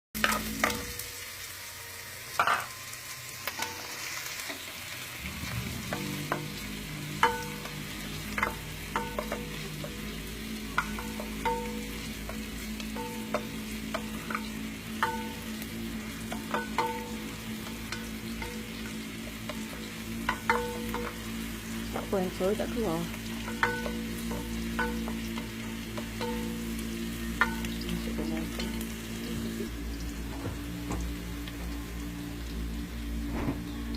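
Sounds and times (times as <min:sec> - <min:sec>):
food sizzling in a pan: 0:00.2 - 0:33.9
metal utensil clinking on pan: 0:02.4 - 0:02.8, 0:07.2 - 0:10.1, 0:16.2 - 0:21.2, 0:23.4 - 0:26.8.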